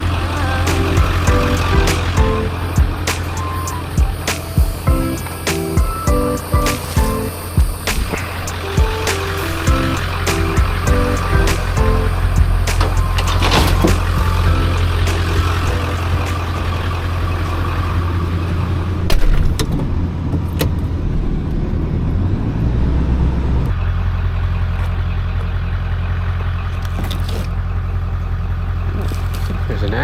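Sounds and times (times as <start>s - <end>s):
motor vehicle engine rumble: 0.0s - 30.0s.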